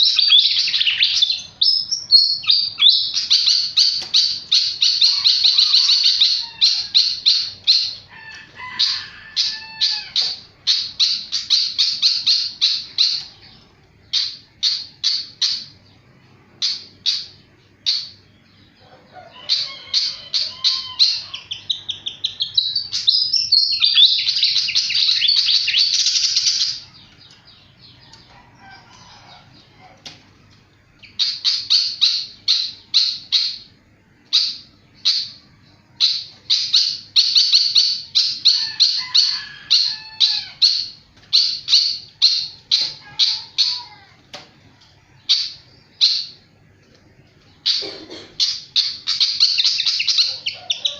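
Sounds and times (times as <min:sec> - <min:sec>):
bird trilling rapidly: 0:47.6 - 0:50.9.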